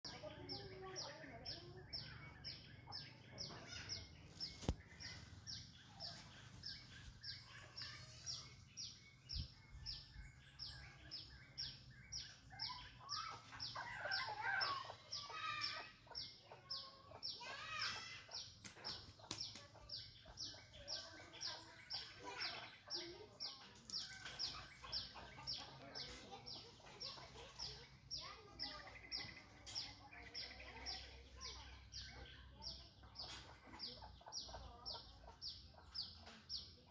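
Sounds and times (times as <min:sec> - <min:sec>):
birds chirping: 0:00.0 - 0:36.9.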